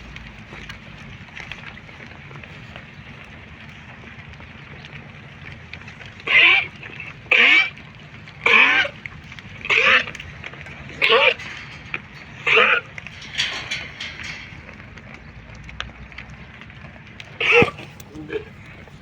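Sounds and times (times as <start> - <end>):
low steady hum: 0.0 - 19.0
sheep bleating: 9.7 - 10.1, 10.9 - 13.6, 17.4 - 18.7.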